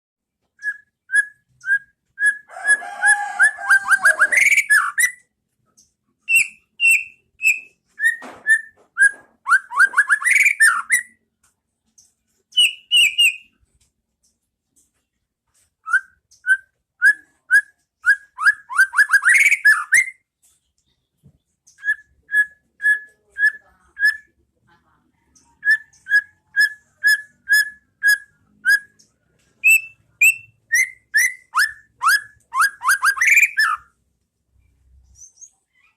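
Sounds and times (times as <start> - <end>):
bird singing whistled notes: 0.6 - 2.5, 6.3 - 11.2, 12.5 - 13.5, 15.8 - 20.2, 25.6 - 33.9.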